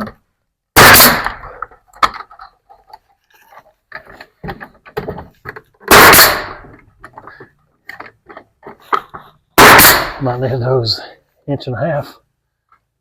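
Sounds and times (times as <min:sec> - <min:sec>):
nail gun firing into wood: 0:00.8 - 0:02.2, 0:05.8 - 0:06.8, 0:09.6 - 0:10.2.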